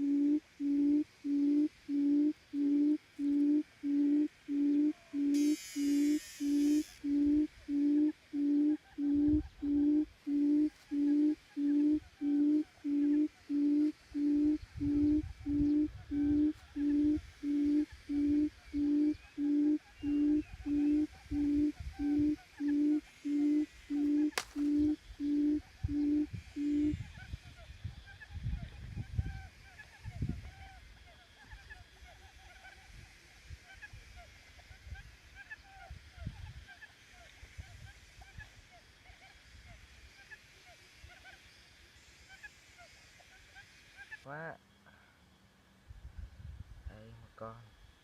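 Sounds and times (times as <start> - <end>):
quail hooting: 0.0 - 41.4
brief hiss: 5.4 - 6.9
sharp click: 24.3 - 24.7.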